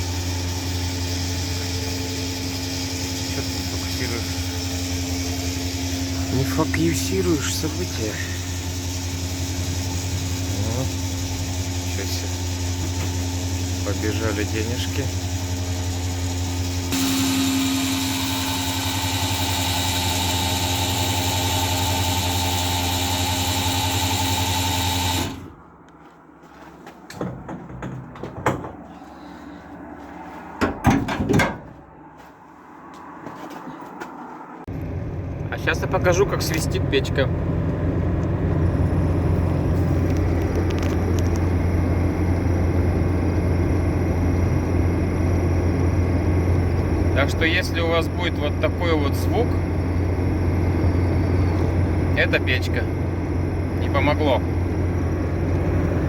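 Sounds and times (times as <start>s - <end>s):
fuel flow rushing: 0.0s - 25.5s
fuel pump machine hum: 0.0s - 25.8s, 34.7s - 56.0s
truck engine and road drone: 0.0s - 56.0s.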